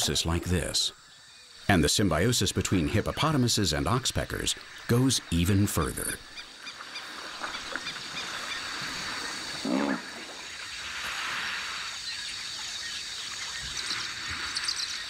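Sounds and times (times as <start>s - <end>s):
animal call: 7.5s - 10.4s.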